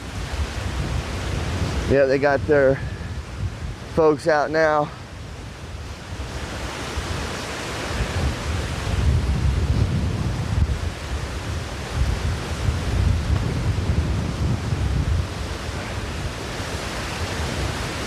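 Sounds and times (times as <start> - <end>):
wind buffeting the microphone: 0.0 - 18.0.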